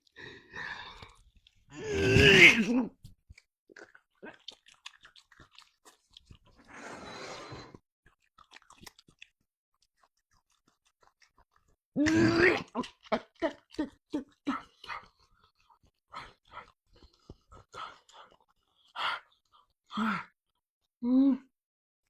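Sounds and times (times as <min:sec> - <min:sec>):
wet crunchy chewing: 0:00.0 - 0:02.5, 0:03.1 - 0:19.7
loud grunt: 0:01.8 - 0:02.9.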